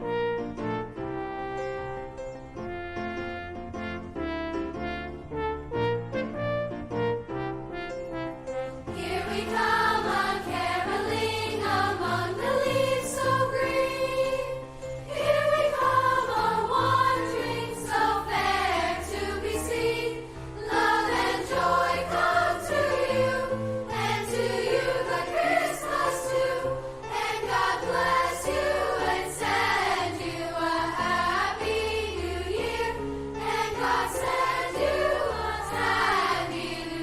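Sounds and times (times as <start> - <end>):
instrumental accompaniment: 0.0 - 37.0
choir singing: 8.9 - 37.0.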